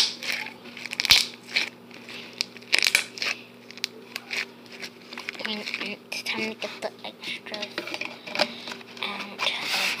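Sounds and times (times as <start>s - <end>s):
slime crackling and popping: 0.0s - 6.3s.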